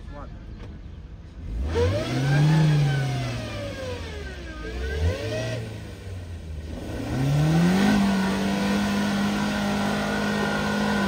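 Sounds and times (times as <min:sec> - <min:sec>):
car engine revving: 0:01.3 - 0:11.0
tyres churning through mud: 0:06.7 - 0:11.0.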